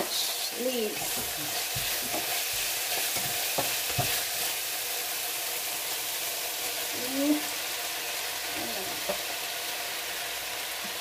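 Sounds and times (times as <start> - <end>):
food sizzling in oil: 0.0 - 11.0
spatula knocking on pan: 1.0 - 4.3.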